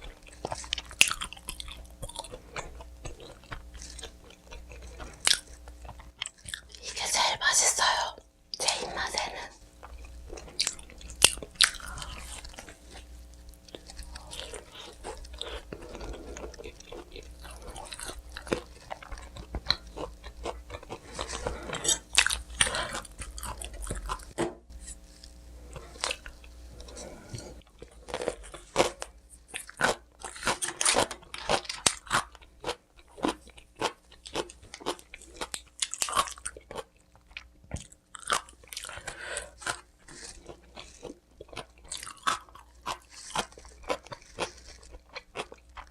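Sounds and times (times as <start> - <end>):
crunchy bites and chewing: 0.0 - 6.8, 9.8 - 45.9.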